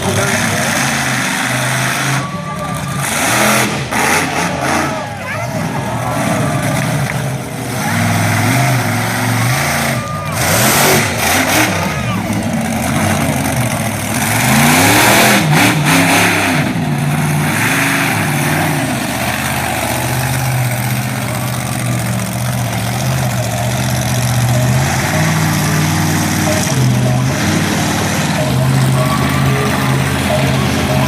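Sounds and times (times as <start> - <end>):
truck engine revving: 0.0 - 31.0.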